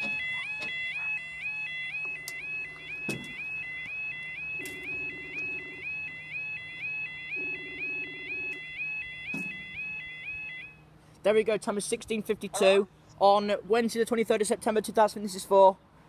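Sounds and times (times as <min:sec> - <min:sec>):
two-tone crossing alarm: 0:00.0 - 0:10.9.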